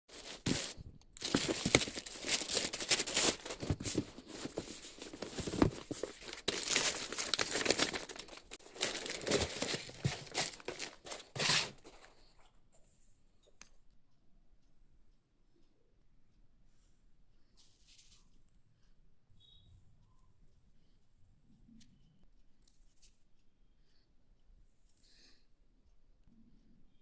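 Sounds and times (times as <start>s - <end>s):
packaging crinkling and tearing: 0.1s - 12.0s.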